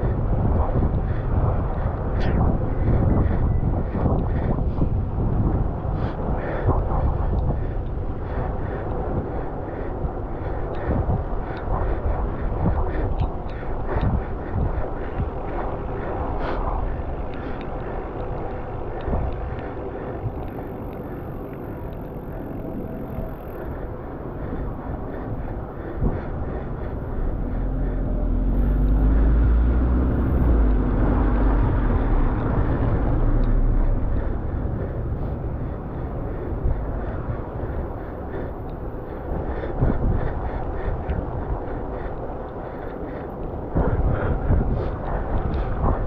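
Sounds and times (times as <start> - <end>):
wind and road noise on bicycle: 0.0 - 46.0
motor vehicle passing: 27.3 - 37.8.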